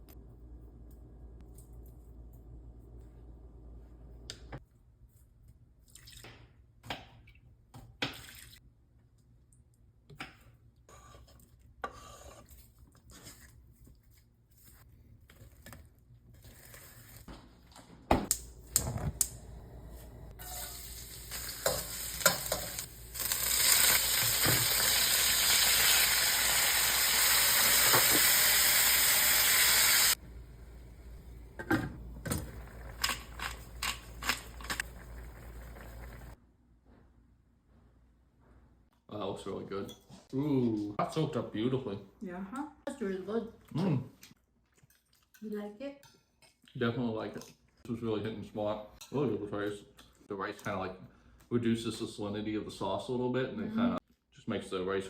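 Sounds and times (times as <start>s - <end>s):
chicken sizzling in a pan: 20.4s - 30.2s.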